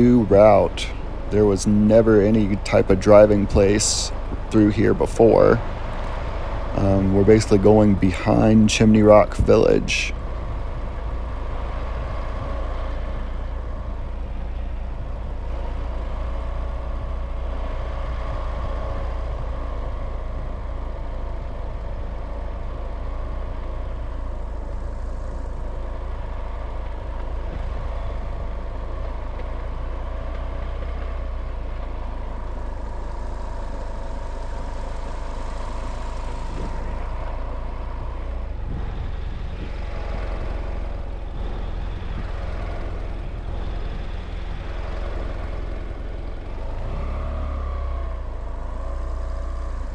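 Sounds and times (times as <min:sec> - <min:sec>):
faint whine: 0:00.0 - 0:30.6
vehicle engine and road noise: 0:00.0 - 0:49.9.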